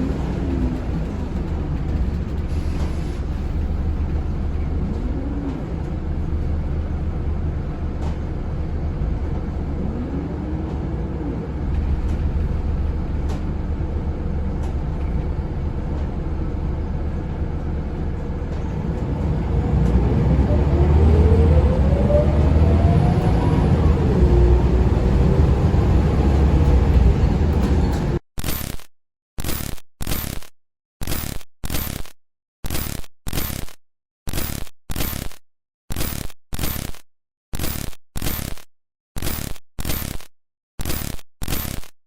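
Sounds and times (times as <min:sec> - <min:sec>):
bus engine droning: 0:00.0 - 0:28.2.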